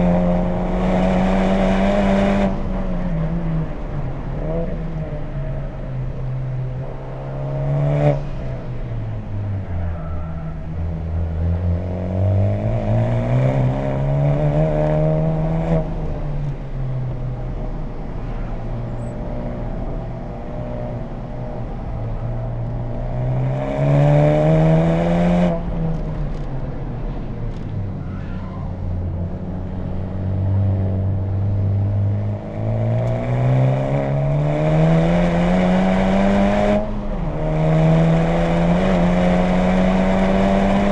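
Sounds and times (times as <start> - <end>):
car engine revving: 0.0 - 9.3, 29.3 - 40.9.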